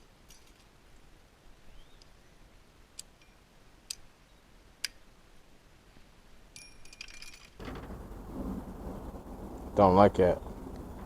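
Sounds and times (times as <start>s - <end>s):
small metal pieces clinking: 6.6s - 7.8s.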